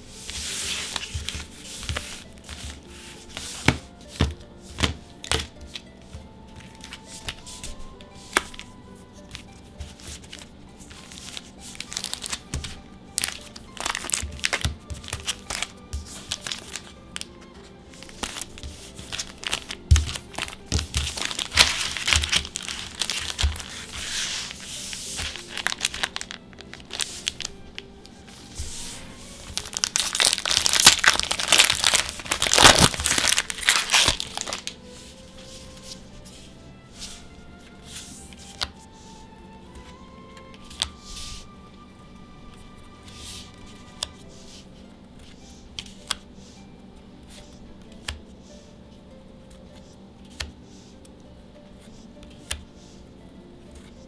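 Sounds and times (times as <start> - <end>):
soft background music: 0.0 - 54.0
foil wrappers crinkling and tearing: 9.4 - 34.9.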